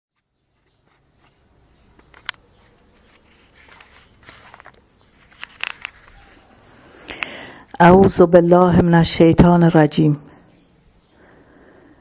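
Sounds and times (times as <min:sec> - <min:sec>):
soft rustles: 0:00.2 - 0:07.4
faint background noise: 0:00.2 - 0:12.0.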